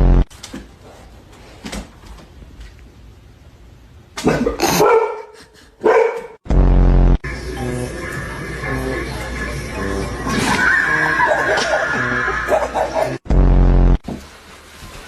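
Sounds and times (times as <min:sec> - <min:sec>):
dog barking: 0:04.3 - 0:06.4.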